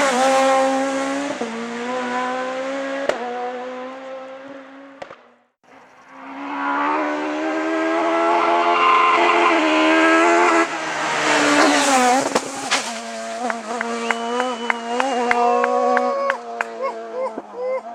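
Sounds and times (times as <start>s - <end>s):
rally car engine at full throttle: 0.0s - 17.9s
tyre squeal: 6.2s - 10.9s.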